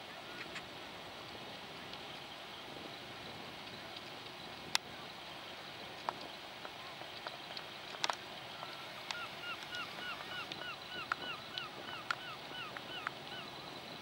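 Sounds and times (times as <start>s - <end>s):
faint sharp clicks: 3.6s - 4.9s, 5.9s - 13.3s.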